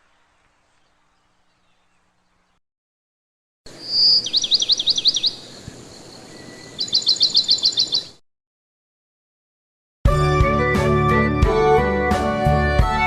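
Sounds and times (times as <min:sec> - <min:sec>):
songbird singing: 0:00.0 - 0:02.6, 0:03.7 - 0:08.2
steady background hiss: 0:03.7 - 0:07.8.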